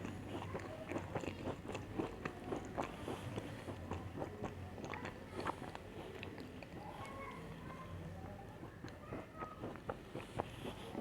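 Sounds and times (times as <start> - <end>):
chocolate biscuits being chewed: 0.0 - 11.0.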